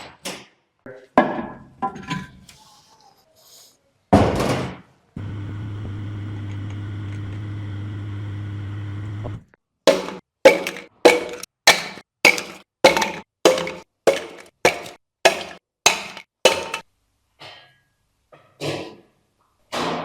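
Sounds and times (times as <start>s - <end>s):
power tool running: 5.2s - 9.5s.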